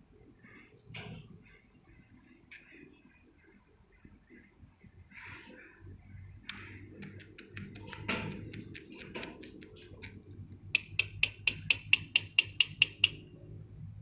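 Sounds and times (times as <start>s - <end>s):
small bird chirping: 6.5s - 10.2s, 10.8s - 13.3s.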